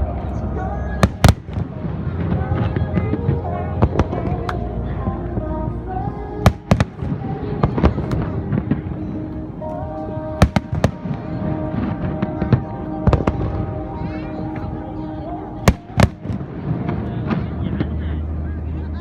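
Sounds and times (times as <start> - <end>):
fireworks bangs: 1.0 - 1.8, 6.5 - 8.7, 10.4 - 11.3, 15.7 - 16.4.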